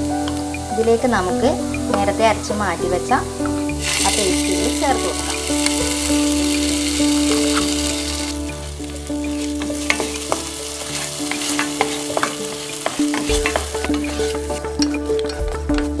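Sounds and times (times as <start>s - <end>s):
onions sizzling in a pan: 0.0s - 15.3s
spoon scraping a pan: 3.4s - 8.4s, 9.2s - 15.2s.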